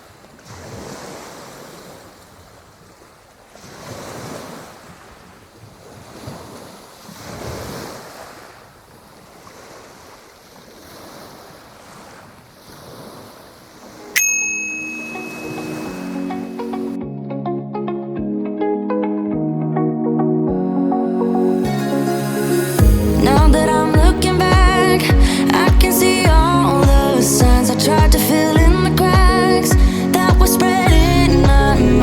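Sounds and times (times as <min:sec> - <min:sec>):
waves breaking: 0:00.0 - 0:17.0, 0:21.6 - 0:31.7
bright chime: 0:14.2 - 0:17.0
music: 0:15.7 - 0:32.0.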